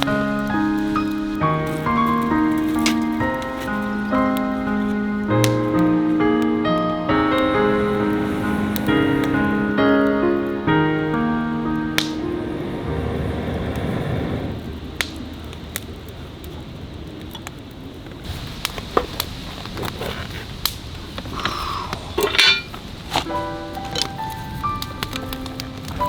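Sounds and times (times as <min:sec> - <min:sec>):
cookware and utensils clinking: 0:22.1 - 0:24.1.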